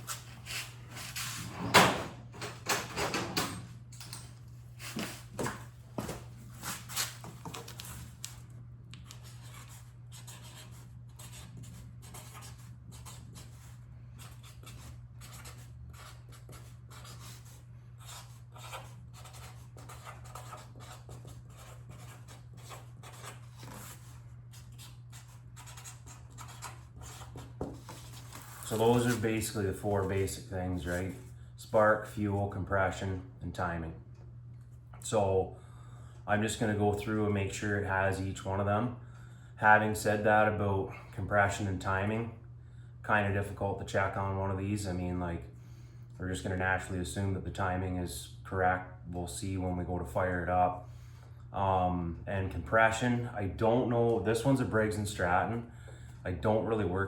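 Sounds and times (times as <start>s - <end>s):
steady low hum: 0.0s - 57.0s
marker pen writing strokes: 9.0s - 28.7s.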